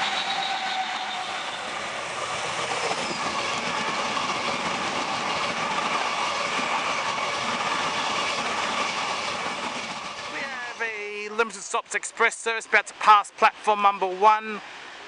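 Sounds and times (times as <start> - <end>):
train wheels rolling: 0.0 - 11.9.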